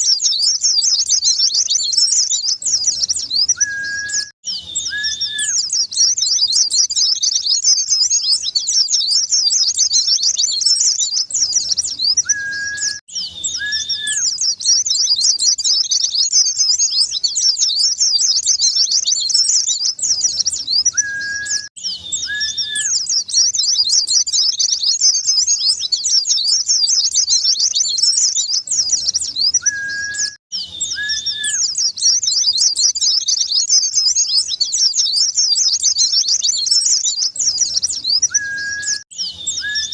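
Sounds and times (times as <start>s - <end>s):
bird twittering chirps: 0.0s - 39.9s
lower whistled notes: 2.9s - 5.7s, 12.2s - 14.4s, 20.2s - 23.1s, 28.8s - 31.8s, 38.2s - 39.9s.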